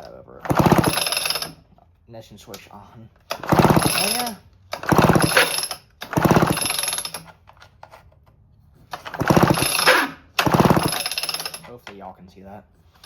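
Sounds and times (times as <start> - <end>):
chainsaw recoil starter whirring: 0.4 - 1.7, 3.3 - 7.3, 8.9 - 11.8.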